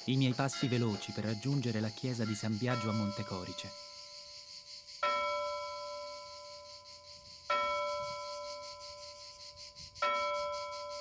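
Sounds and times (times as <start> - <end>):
church bell tolling: 0.0 - 4.0, 5.0 - 6.6, 7.5 - 8.8.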